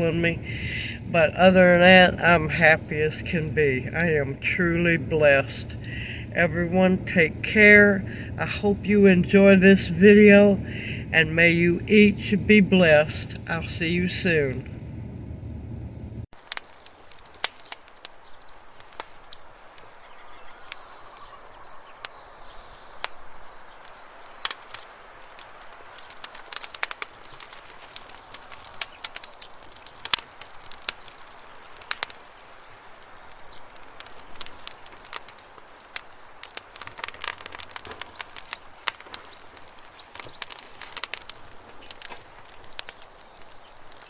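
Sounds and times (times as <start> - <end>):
steady hiss: 0.0 - 21.4
sharp clicks and crackles: 0.0 - 44.0
faint bird chirps: 19.2 - 24.4.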